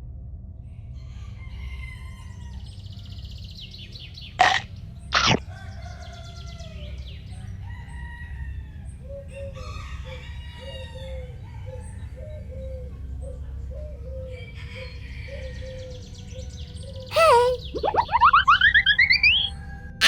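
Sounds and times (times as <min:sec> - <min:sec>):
small birds chirping: 0:17.1 - 0:19.5.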